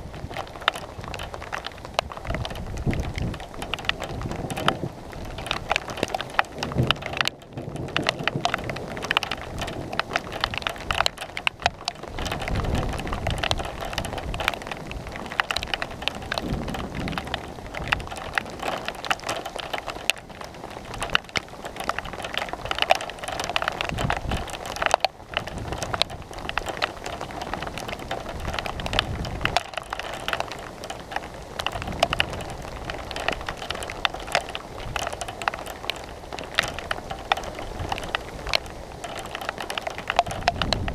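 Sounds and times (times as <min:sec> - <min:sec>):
rain falling: 0:00.0 - 0:40.9
raindrops ticking close by: 0:00.0 - 0:40.9
thunder rumbling: 0:12.1 - 0:18.9.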